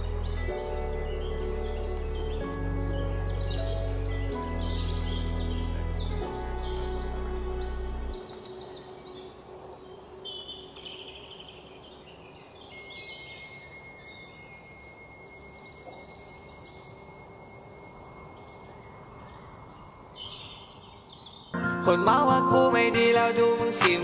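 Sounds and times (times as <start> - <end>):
thin high steady tone: 0.0 - 20.7
outdoor background hiss: 0.0 - 21.6
birds chirping and trilling: 0.0 - 22.3.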